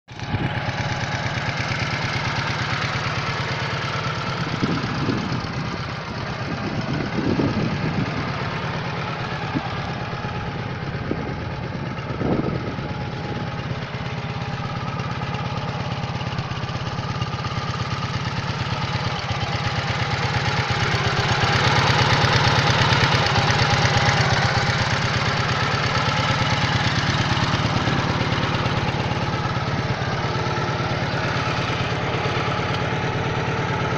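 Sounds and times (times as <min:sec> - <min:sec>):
motorcycle engine idling and revving: 0:00.1 - 0:33.9.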